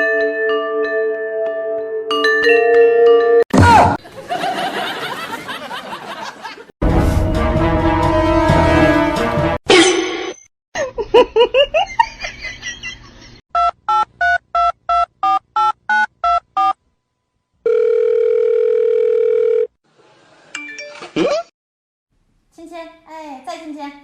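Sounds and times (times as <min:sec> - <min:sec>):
steady phone tone: 0:17.6 - 0:19.7.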